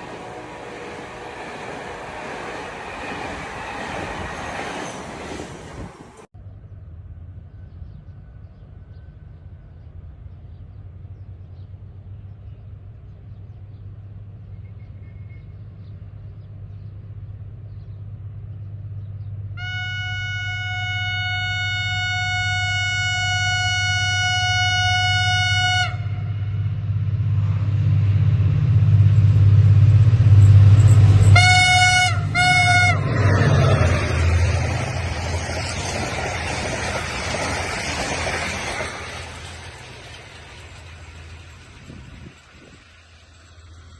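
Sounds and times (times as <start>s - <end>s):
train horn: 0.0s - 3.6s, 19.6s - 26.8s, 31.2s - 34.6s
locomotive engine rumble: 0.0s - 43.9s
wheel and wagon noise: 30.1s - 43.9s.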